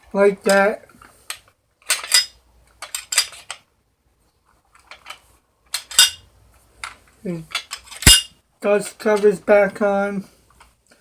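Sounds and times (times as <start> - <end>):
metallic clicks and scrapes: 0.5 - 3.7, 4.5 - 9.3.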